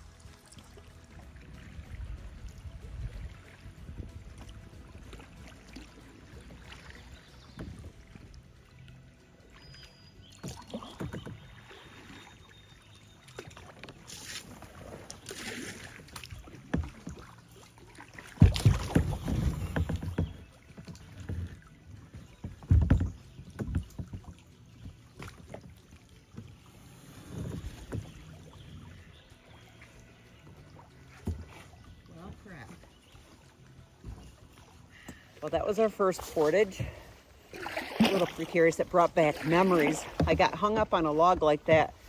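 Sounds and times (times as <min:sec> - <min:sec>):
paddle strokes and splashing: 0:00.0 - 0:42.0
loud thumps and knocks: 0:18.4 - 0:20.4.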